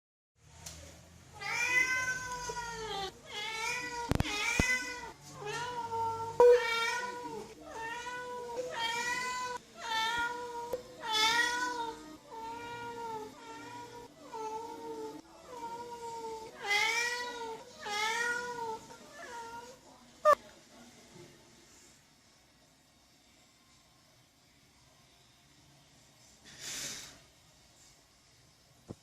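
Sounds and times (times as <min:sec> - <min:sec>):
cat meowing: 0:01.4 - 0:19.7.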